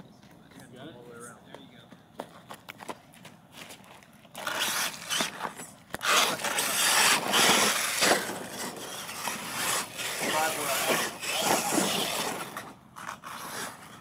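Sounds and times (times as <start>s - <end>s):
tyres spinning on dirt: 3.8s - 14.0s.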